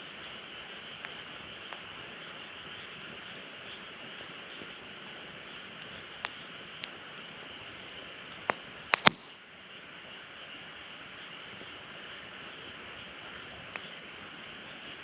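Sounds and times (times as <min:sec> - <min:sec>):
wood fire crackling: 0:00.0 - 0:15.0
sharp pops of fire: 0:00.2 - 0:03.5, 0:04.1 - 0:09.4, 0:12.4 - 0:14.4.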